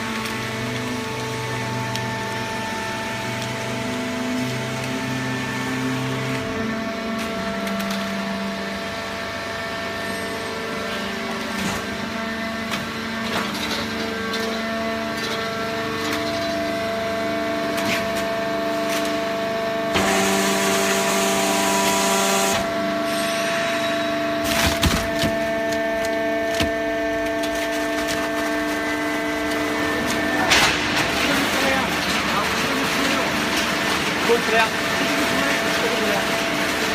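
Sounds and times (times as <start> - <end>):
baler motor and pump whine: 0.0 - 36.9
cardboard cracking and creaking: 24.4 - 32.4.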